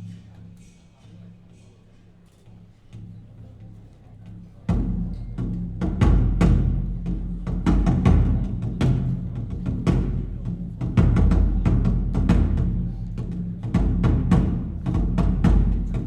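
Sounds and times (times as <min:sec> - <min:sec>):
drum-heavy music over loudspeakers: 0:04.7 - 0:16.0
loud deep drum hits: 0:04.7 - 0:16.0.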